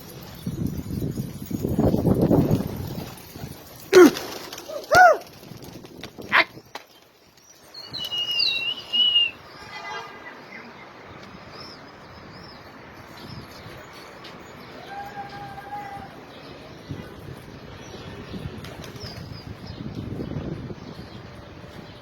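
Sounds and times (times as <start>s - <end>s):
pigeon wing flaps: 2.4s - 6.9s, 18.6s - 19.2s
sweeping bird calls: 6.3s - 16.6s
high bird chirping: 7.5s - 9.7s.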